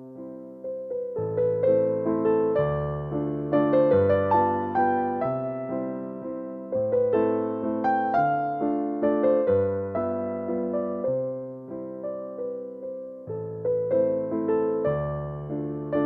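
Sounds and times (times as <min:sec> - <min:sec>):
gentle piano piece: 0:00.0 - 0:16.0.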